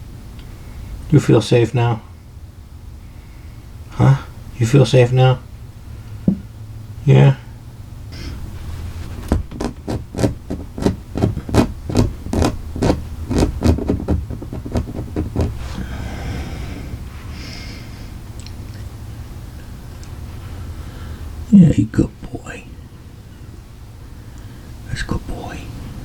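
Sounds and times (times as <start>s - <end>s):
cat scratching taps: 9.2s - 15.7s.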